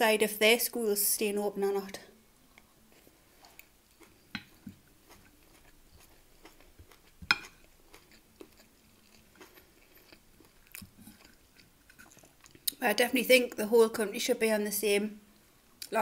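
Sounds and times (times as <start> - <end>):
quiet chewing: 1.9 - 12.8.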